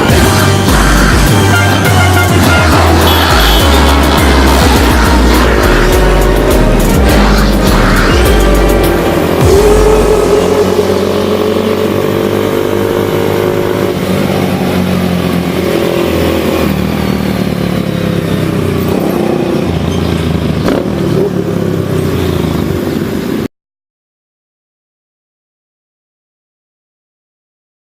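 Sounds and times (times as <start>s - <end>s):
small motorcycle engine running: 0.0s - 23.4s.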